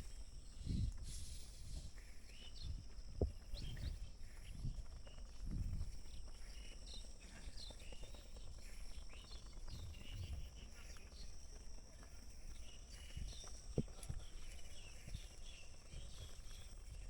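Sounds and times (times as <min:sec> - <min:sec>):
insect hiss: 0:00.4 - 0:06.7.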